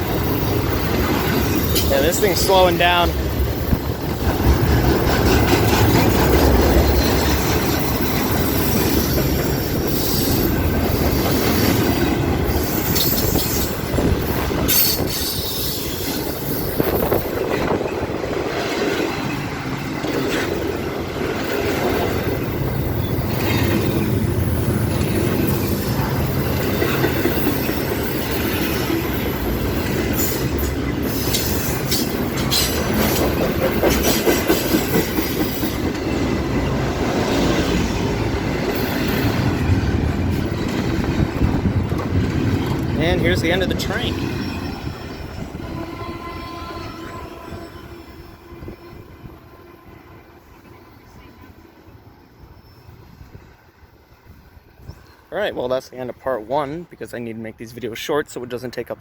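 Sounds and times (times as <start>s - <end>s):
train wheels clattering over rails: 0.0s - 45.6s.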